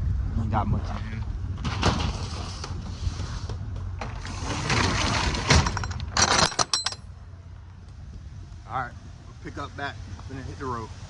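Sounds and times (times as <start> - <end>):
hard items rattling and clinking: 4.6 - 7.1.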